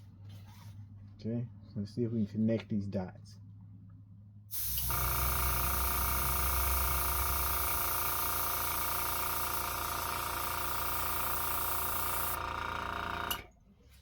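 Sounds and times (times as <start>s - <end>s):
airbrush spraying hiss: 4.5s - 12.4s
compressor motor humming: 4.5s - 13.6s.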